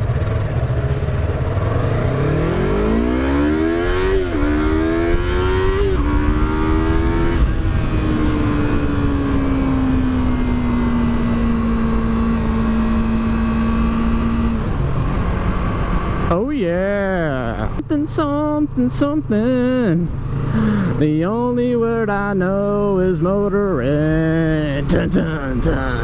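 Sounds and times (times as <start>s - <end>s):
low wind noise: 0.0s - 19.3s
motorcycle engine accelerating: 0.0s - 26.0s.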